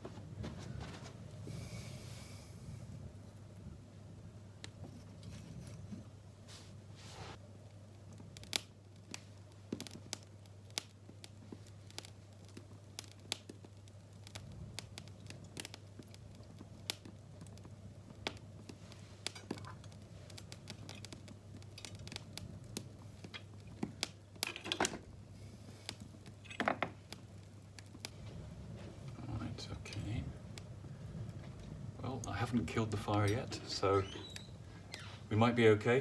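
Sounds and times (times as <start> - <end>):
wood fire crackling: 0.0 - 36.0
faint low hum: 25.0 - 36.0.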